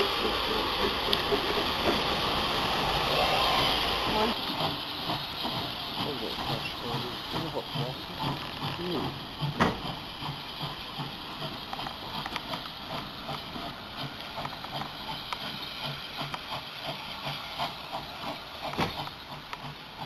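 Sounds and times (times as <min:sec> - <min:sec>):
steam locomotive hissing: 0:00.0 - 0:20.0
scattered clicks: 0:11.7 - 0:13.4.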